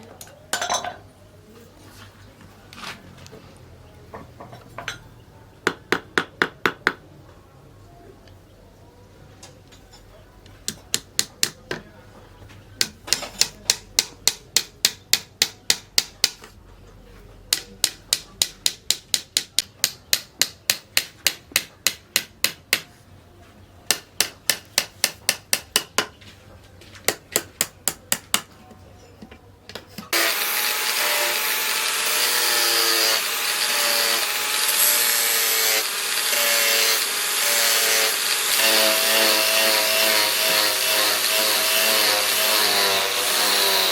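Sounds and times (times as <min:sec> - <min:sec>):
power grinder whining: 0:30.1 - 0:43.9.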